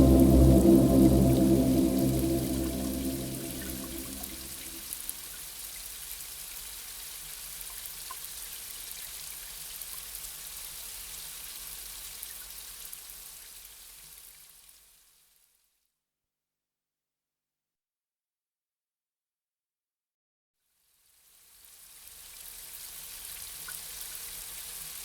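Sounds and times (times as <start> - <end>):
ambient music: 0.0 - 4.8
gentle rain: 0.0 - 5.0.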